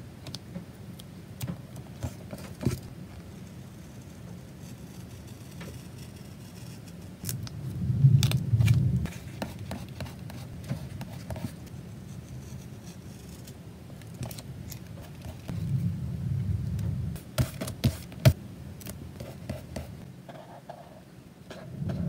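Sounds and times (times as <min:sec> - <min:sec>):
rubbing and knocking on desk: 0:09.1 - 0:11.6, 0:17.2 - 0:18.4.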